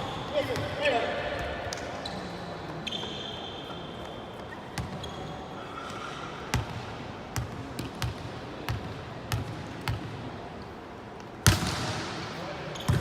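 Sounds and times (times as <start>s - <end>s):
sports hall murmur: 0.0s - 13.0s
shoe squeak: 2.0s - 6.4s.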